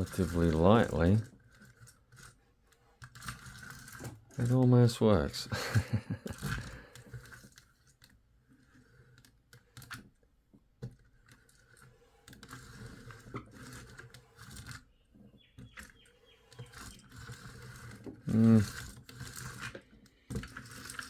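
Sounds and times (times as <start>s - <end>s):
plastic toy clicking and rattling: 0.0s - 2.4s, 3.0s - 5.3s, 16.6s - 21.0s.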